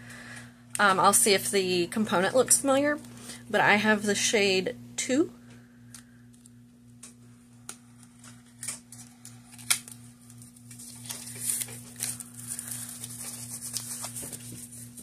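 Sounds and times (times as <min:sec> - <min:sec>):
low electrical hum: 0:00.0 - 0:15.0
packaging rustling and crinkling: 0:07.9 - 0:15.0.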